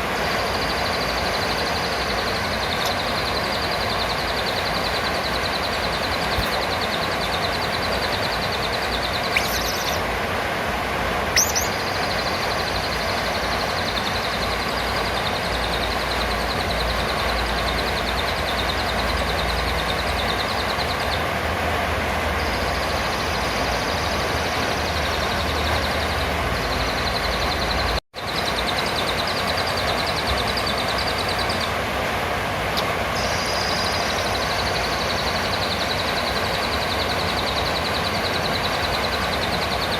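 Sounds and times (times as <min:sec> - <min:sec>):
parrot buzzing trill: 0:00.0 - 0:10.0, 0:11.4 - 0:21.2
sharp high chirps: 0:00.0 - 0:10.0, 0:11.4 - 0:21.2, 0:32.8 - 0:39.9.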